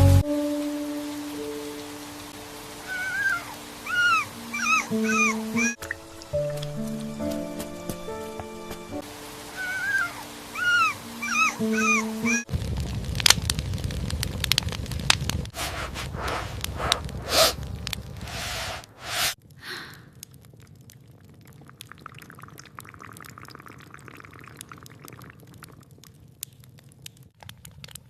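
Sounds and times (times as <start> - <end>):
water dripping and splashing: 0.6 - 15.3, 20.1 - 28.0.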